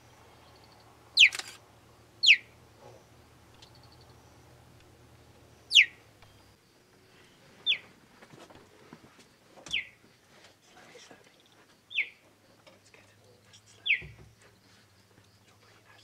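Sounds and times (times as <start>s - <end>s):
cheetah chirping: 0.4s - 1.6s, 2.2s - 4.5s, 5.5s - 7.9s, 9.7s - 10.0s, 11.2s - 12.3s, 13.3s - 16.0s.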